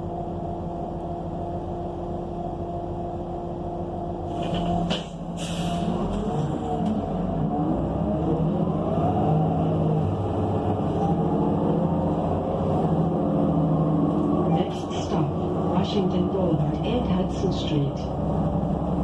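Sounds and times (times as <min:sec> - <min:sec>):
bus accelerating: 0:00.0 - 0:19.0
bus engine idling: 0:00.0 - 0:19.0
air brakes hissing: 0:04.3 - 0:06.0.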